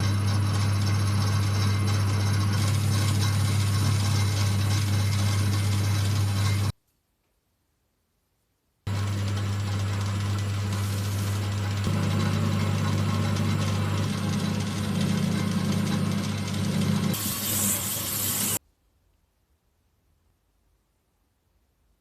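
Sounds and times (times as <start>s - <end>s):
power tool motor humming: 0.0s - 6.7s, 8.9s - 18.6s.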